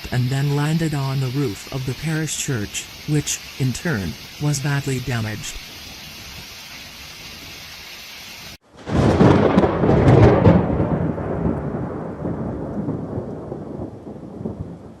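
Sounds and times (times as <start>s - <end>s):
rain hissing: 0.0s - 15.0s
thunder clap and rumble: 8.7s - 15.0s.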